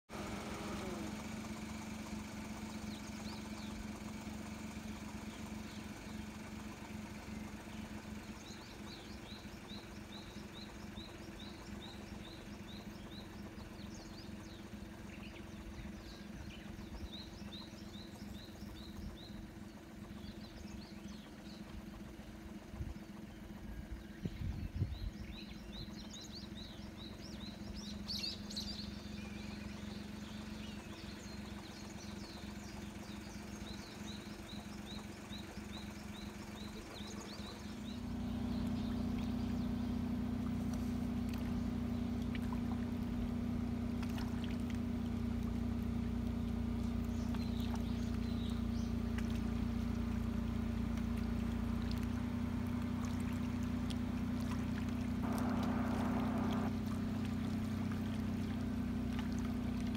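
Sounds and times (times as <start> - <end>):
distant engine hum: 0.1 - 59.9
small birds chirping: 0.1 - 59.9
brief low rumble: 54.4 - 59.9.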